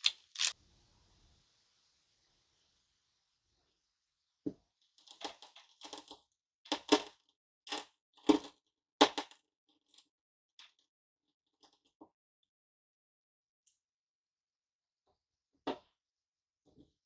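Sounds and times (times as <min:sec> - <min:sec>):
hard candy crunching cracks: 0:00.0 - 0:00.6.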